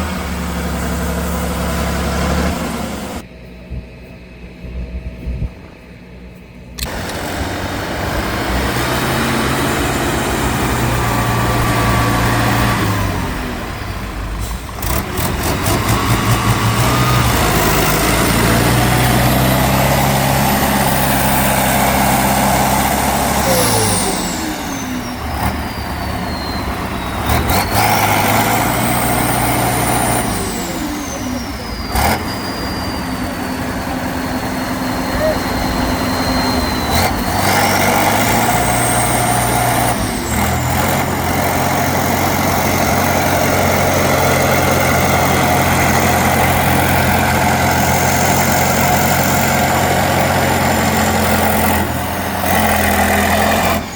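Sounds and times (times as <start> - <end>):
truck engine revving: 0.0 - 3.3, 6.8 - 53.9
high whine: 22.6 - 25.3.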